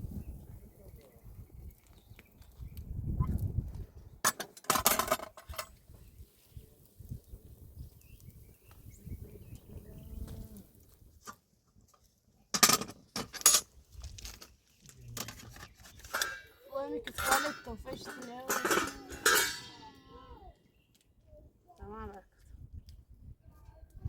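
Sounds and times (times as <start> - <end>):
livestock bleating: 19.0 - 20.5.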